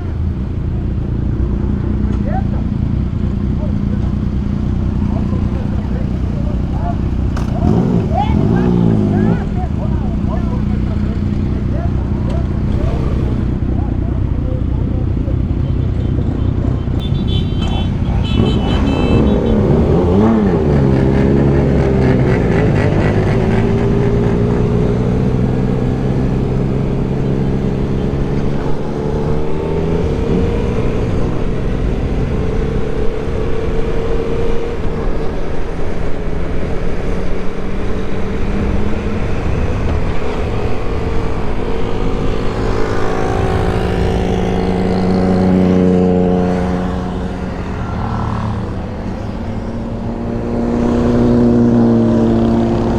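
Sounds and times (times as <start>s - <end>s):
motorcycle engines running: 0.0s - 52.9s.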